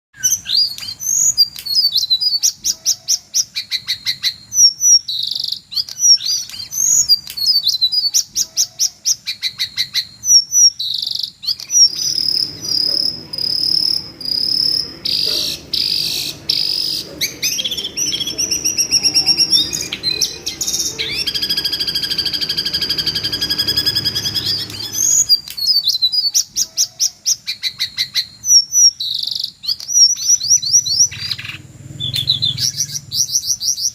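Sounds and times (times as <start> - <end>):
high bird chirps and whistles: 0.2 - 33.9
long high whistled notes: 11.8 - 25.5.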